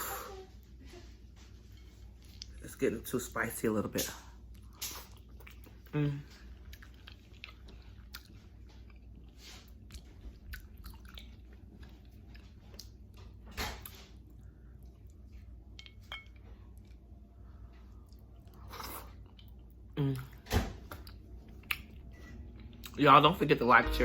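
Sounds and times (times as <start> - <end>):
person chewing: 1.9 - 2.6, 4.4 - 13.4, 14.2 - 23.0.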